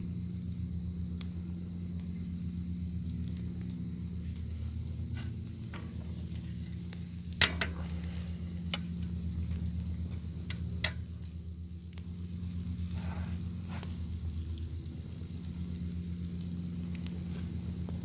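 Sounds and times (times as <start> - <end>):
crackles and sharp pops: 0.0 - 18.0
low hum: 0.0 - 18.0.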